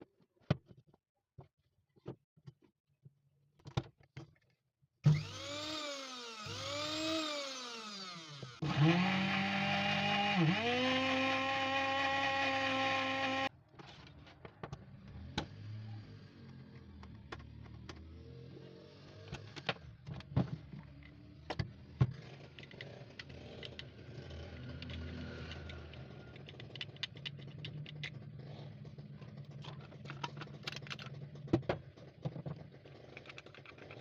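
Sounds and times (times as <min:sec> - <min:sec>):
electric blender motor whining: 0:05.0 - 0:13.5.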